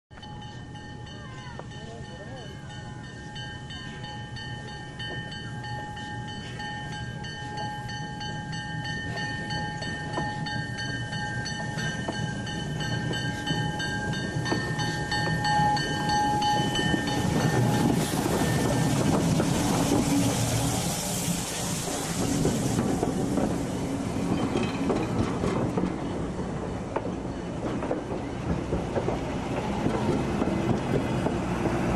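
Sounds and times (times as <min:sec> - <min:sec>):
train wheels clicking over rail joints: 0:08.8 - 0:31.9.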